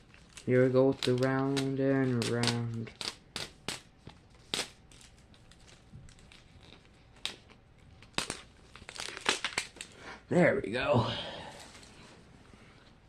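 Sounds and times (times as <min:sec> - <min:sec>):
plastic wrapping crackling: 0:00.0 - 0:10.0.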